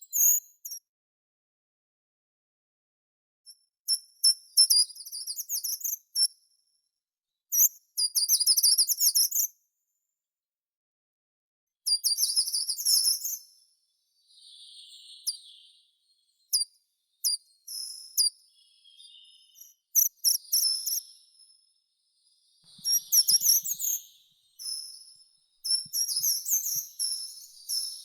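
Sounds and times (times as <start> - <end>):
songbird singing: 14.0 - 28.0.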